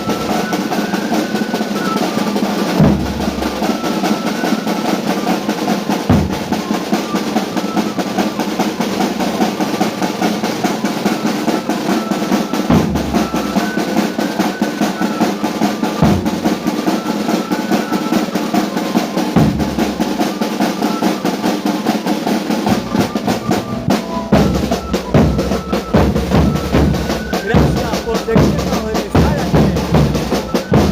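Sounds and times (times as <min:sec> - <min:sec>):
snare drum rolls: 0:00.0 - 0:30.9
simple high melody: 0:06.6 - 0:30.9.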